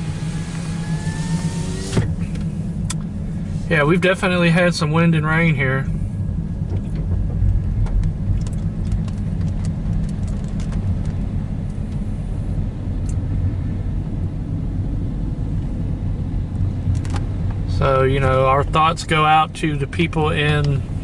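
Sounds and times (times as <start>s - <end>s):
car rumble from inside cabin: 0.0s - 21.0s.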